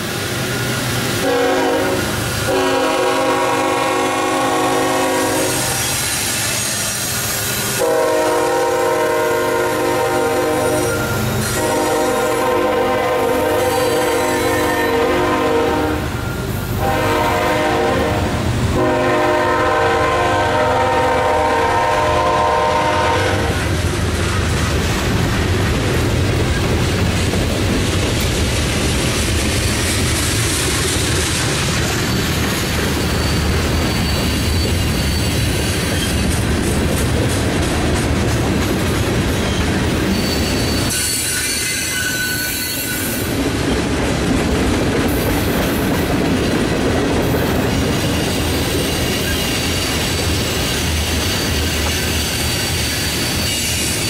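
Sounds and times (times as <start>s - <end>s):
faint high wheel squeal: 0.4s - 1.1s, 10.6s - 12.4s, 16.1s - 16.7s, 32.0s - 36.3s, 39.4s - 43.3s, 48.1s - 54.0s
locomotive air horn: 1.2s - 6.0s, 7.8s - 23.8s
freight cars rumbling and clacking: 23.7s - 41.0s, 43.2s - 54.0s.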